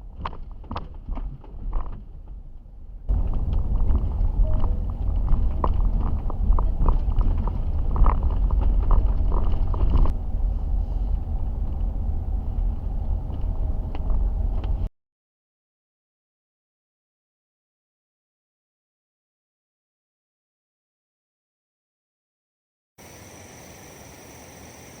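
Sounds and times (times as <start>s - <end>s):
car driving on rough road: 0.0s - 14.9s
knocks and clicks: 3.1s - 10.1s.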